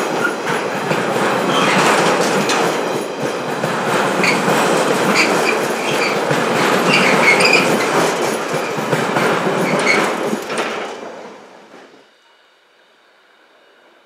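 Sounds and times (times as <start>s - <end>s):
freight wagons clattering over rails: 0.0s - 11.5s
wheel squeals: 1.5s - 2.6s, 4.2s - 8.9s, 9.6s - 10.3s.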